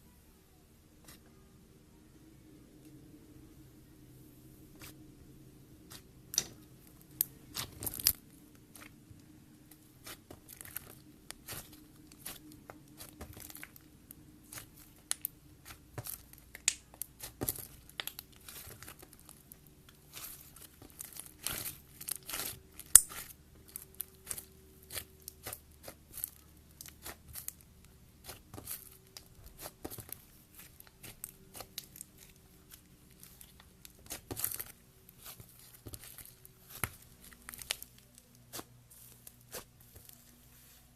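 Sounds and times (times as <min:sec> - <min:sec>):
slime crackling and popping: 0:05.9 - 0:40.1.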